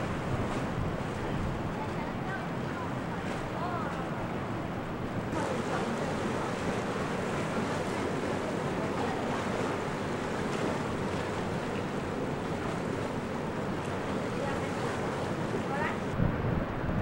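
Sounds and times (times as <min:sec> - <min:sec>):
rushing water roar: 0:00.0 - 0:17.0
wind on microphone: 0:12.4 - 0:17.0.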